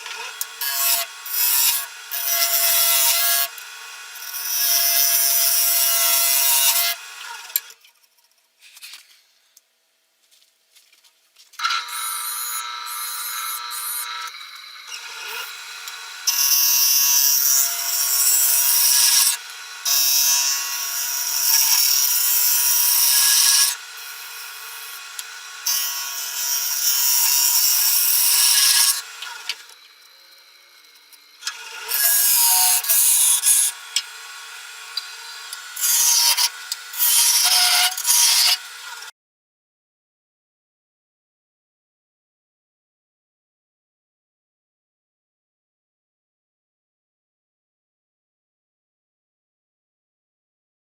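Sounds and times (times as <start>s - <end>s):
wood lathe motor hum: 11.8s - 30.5s, 31.2s - 39.1s.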